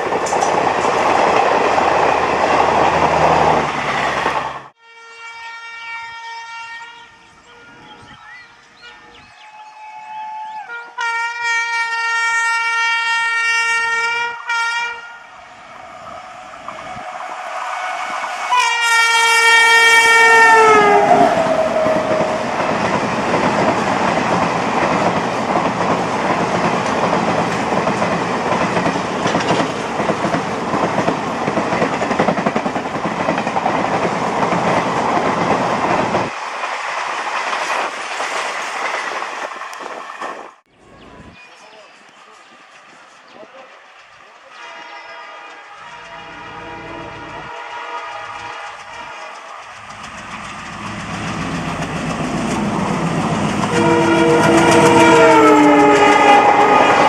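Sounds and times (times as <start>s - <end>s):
train coaches clattering on rails: 0.0s - 4.7s, 19.9s - 40.5s, 41.7s - 57.0s
locomotive air horn blasts: 4.8s - 7.8s, 10.7s - 15.3s, 18.5s - 22.6s, 44.6s - 49.5s, 53.6s - 57.0s.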